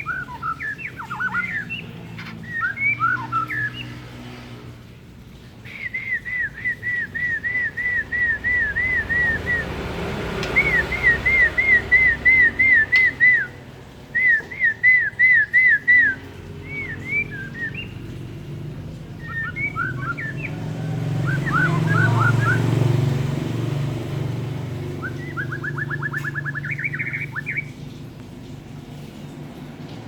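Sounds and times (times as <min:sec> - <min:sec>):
songbird whistling and trilling: 0:00.0 - 0:04.0, 0:05.6 - 0:18.3, 0:19.1 - 0:22.8, 0:24.8 - 0:27.9
low engine hum: 0:00.0 - 0:30.0.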